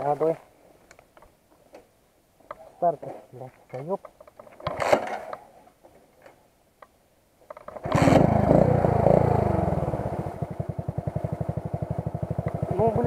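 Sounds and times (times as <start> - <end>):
motorcycle engine starting and idling: 7.6 - 13.0.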